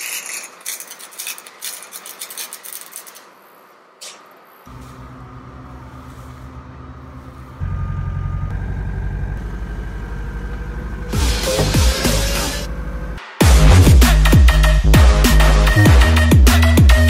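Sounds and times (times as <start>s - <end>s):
truck engine idling: 4.7s - 13.2s
air hiss: 11.1s - 12.7s.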